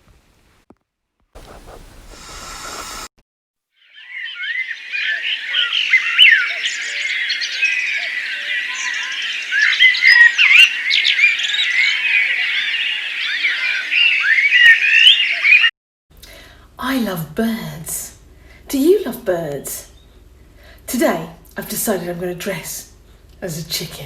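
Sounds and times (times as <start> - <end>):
chorus of small birds chirping: 1.4 - 3.1, 3.8 - 15.6.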